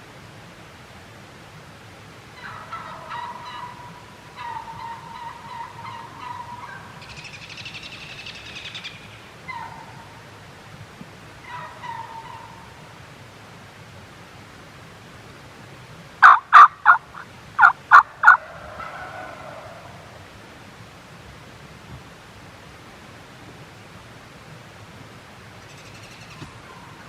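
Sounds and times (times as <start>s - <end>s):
wild turkeys gobbling: 2.3s - 10.3s, 11.4s - 12.8s, 16.2s - 20.2s, 25.6s - 27.0s.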